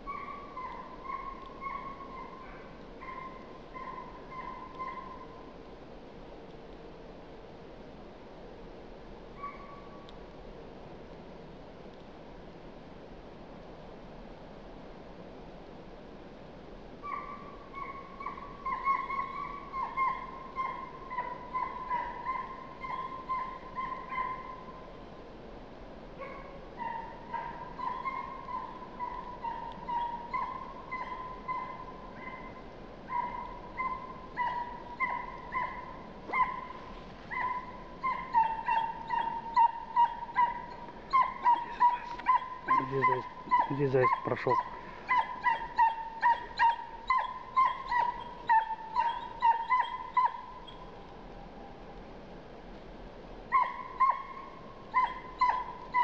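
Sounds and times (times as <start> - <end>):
hound yelping bays: 0.1 - 5.3, 9.4 - 9.9, 17.0 - 24.7, 26.2 - 51.0, 53.5 - 56.0.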